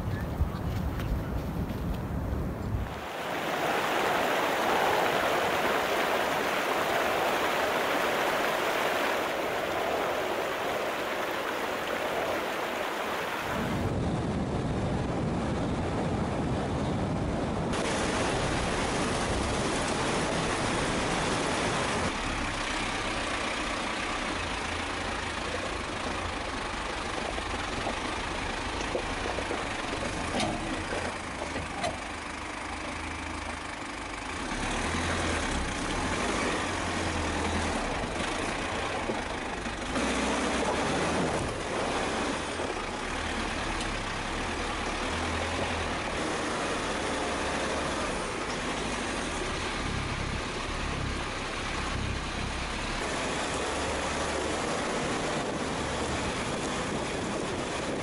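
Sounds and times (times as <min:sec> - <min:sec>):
steady rushing noise: 0:00.0 - 0:23.8
road noise: 0:00.0 - 0:58.0
vehicle engine running: 0:00.0 - 0:58.0.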